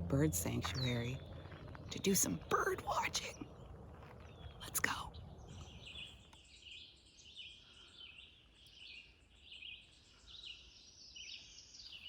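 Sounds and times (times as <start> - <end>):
songbirds chirping and trilling: 0.0 - 12.0.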